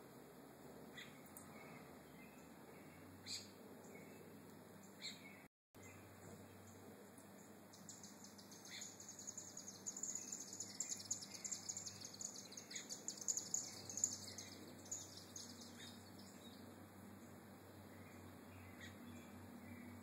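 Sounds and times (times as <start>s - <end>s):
lower bird chirps: 0.9s - 20.0s
bird twittering: 7.7s - 16.6s.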